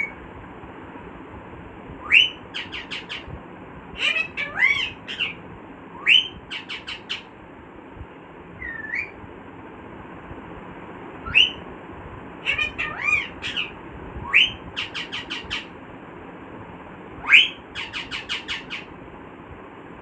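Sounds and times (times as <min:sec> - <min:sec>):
parrot squawking: 0:02.1 - 0:03.3, 0:04.0 - 0:05.4, 0:06.0 - 0:07.3, 0:08.6 - 0:09.2, 0:12.4 - 0:15.7, 0:17.2 - 0:18.9.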